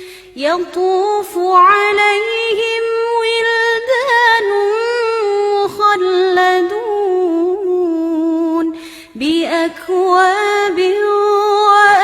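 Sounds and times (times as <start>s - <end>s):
quick breath: 0.0s - 0.4s, 8.8s - 9.2s
girl chanting melodically: 0.0s - 12.0s.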